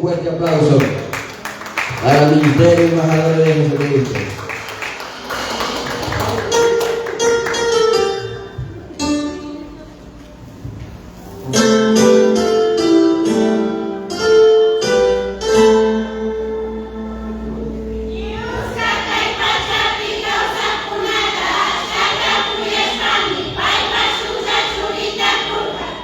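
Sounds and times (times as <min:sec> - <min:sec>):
crowd clapping and cheering: 0:00.0 - 0:08.2
guitar picking notes: 0:11.4 - 0:19.2.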